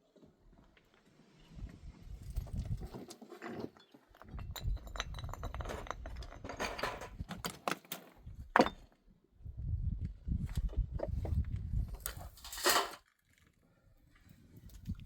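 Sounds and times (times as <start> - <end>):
hard objects clinking: 3.7 - 8.0.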